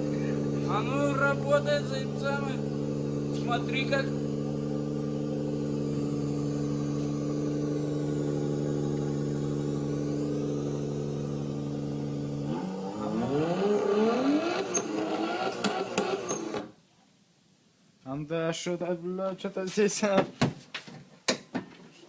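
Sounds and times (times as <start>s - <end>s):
man imitating car engine: 0.0s - 10.4s.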